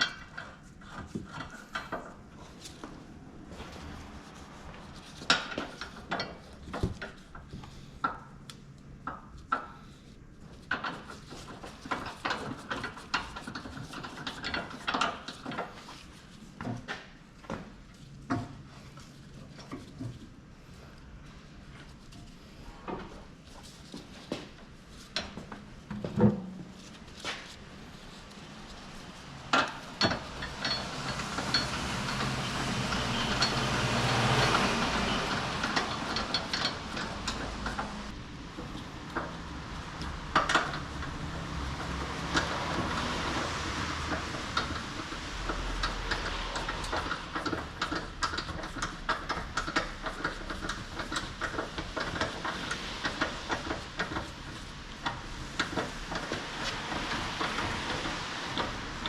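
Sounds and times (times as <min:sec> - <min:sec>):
steady background noise: 0:00.0 - 0:59.0
metal clicks taps and clanks: 0:40.0 - 0:59.0.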